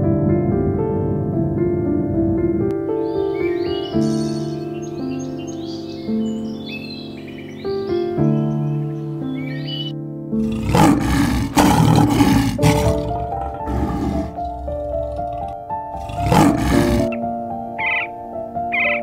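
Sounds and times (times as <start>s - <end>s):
piano music: 0.0s - 19.0s
lion roaring: 10.4s - 17.2s.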